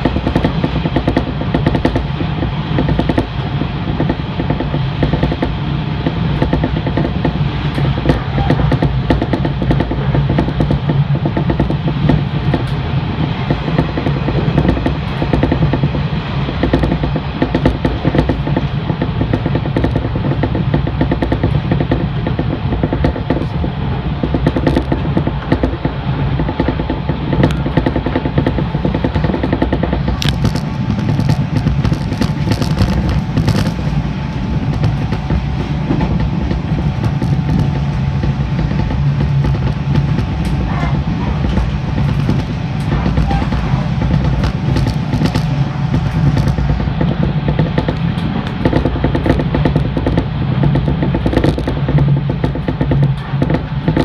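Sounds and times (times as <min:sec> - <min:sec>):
electric train rumbling: 0:00.0 - 0:54.0
wheels clicking over rail joints: 0:00.0 - 0:54.0.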